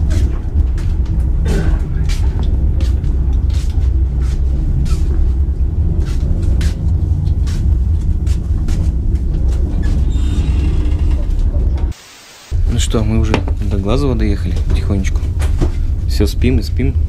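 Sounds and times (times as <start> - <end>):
train coach low rumble: 0.0 - 12.0, 12.6 - 17.0.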